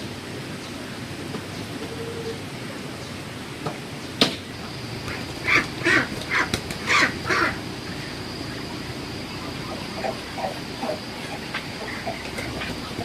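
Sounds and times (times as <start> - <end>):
ducks quacking: 5.0 - 8.7, 9.3 - 13.0.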